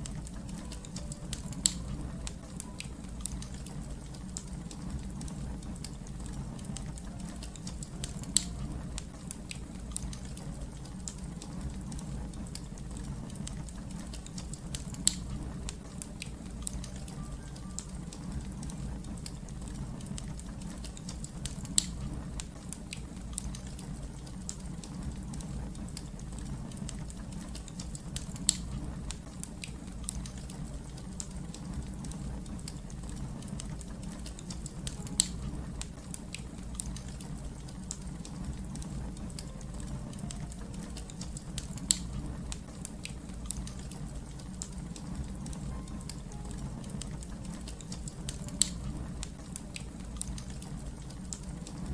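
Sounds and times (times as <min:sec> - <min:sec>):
fire crackling and popping: 0:00.0 - 0:51.9.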